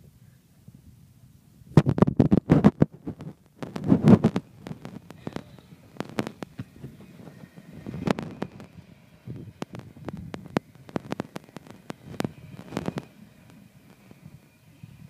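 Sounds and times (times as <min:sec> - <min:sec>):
freight train low rumble: 0:03.4 - 0:15.0.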